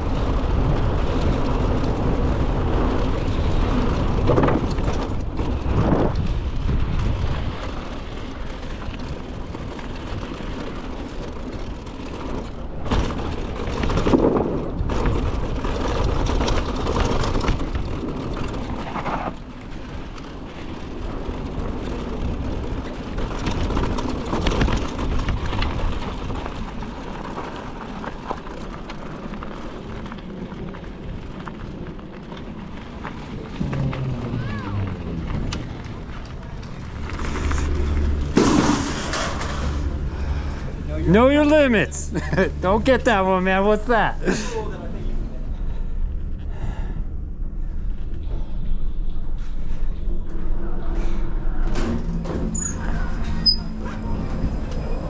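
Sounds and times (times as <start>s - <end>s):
wind buffeting microphone: 0.0s - 42.5s
bike rattling: 0.0s - 55.0s
bike tyre noise: 0.0s - 55.0s.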